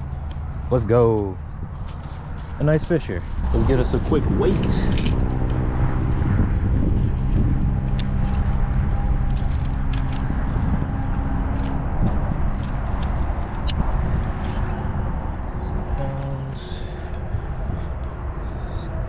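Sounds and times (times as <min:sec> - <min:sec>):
light clicks and rustles: 0:00.0 - 0:05.6, 0:07.0 - 0:14.9
engine humming: 0:00.0 - 0:19.0.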